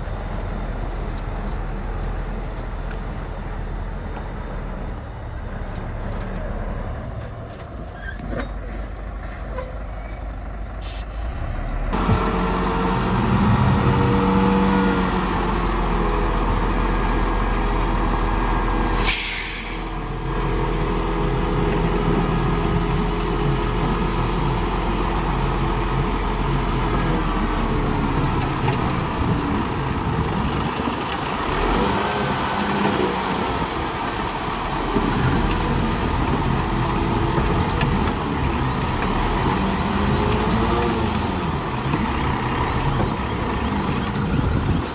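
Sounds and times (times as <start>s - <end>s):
heavy diesel engine running: 0.0s - 44.9s
air brake hiss: 10.8s - 11.5s, 18.9s - 20.0s.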